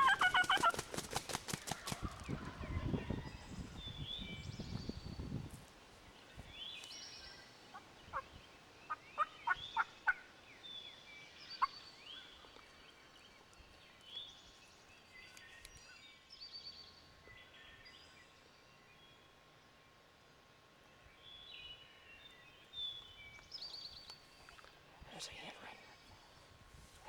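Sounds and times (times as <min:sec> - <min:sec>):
turkey gobbling: 0:00.0 - 0:01.0, 0:08.9 - 0:10.2
small birds singing: 0:01.5 - 0:19.8, 0:20.9 - 0:26.8.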